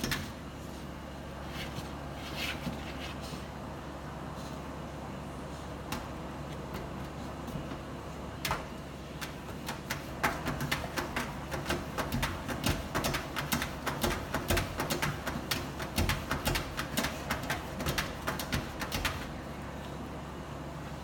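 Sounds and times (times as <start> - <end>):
puppy claws tapping and scratching: 9.2 - 19.3.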